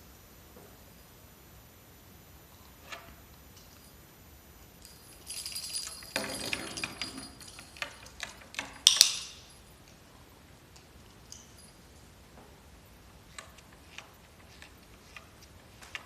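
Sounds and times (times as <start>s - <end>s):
metallic jingling and clinking: 4.8s - 9.9s, 11.2s - 12.0s.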